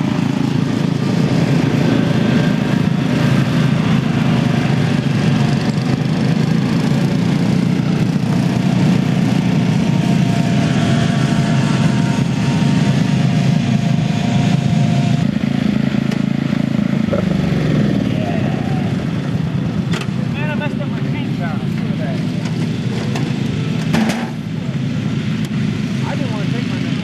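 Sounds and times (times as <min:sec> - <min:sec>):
riding lawn mower engine: 0:00.0 - 0:27.0.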